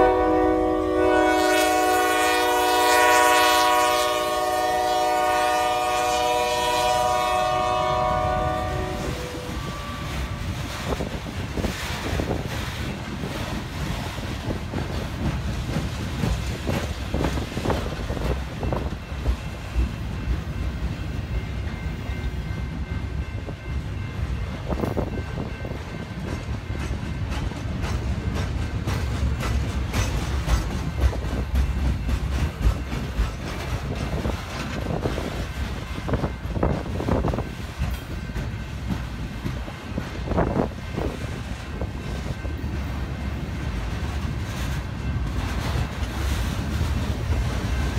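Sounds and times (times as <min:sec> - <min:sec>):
train rumbling past: 0:00.0 - 0:47.9
wheels clicking over rail joints: 0:10.5 - 0:22.4, 0:24.7 - 0:47.9.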